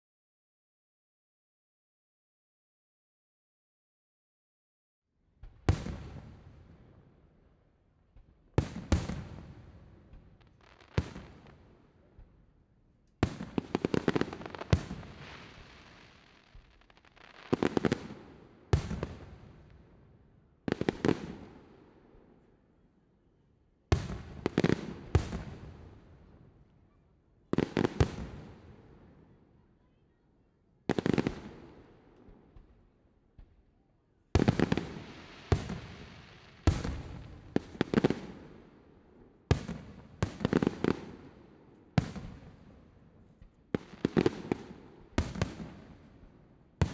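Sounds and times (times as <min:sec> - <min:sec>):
rapid crackling fireworks: 0:13.2 - 0:19.6, 0:34.4 - 0:38.7, 0:39.5 - 0:41.4, 0:42.0 - 0:46.0
fireworks booming with echo: 0:34.4 - 0:38.7.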